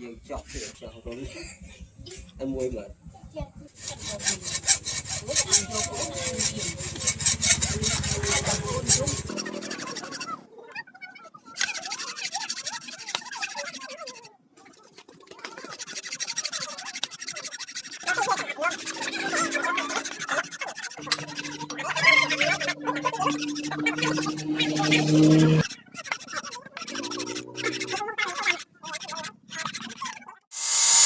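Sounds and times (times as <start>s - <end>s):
low hum: 0.7s - 10.1s, 18.4s - 25.7s
scraping on steel knife blade: 3.8s - 10.4s, 11.6s - 14.2s, 15.5s - 29.8s.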